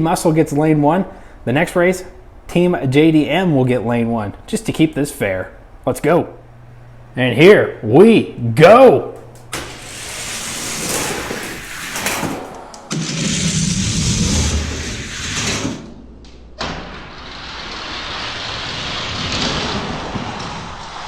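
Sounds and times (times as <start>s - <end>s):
clicks: 9.1s - 10.0s
toy cars rolling rattle: 9.7s - 12.5s.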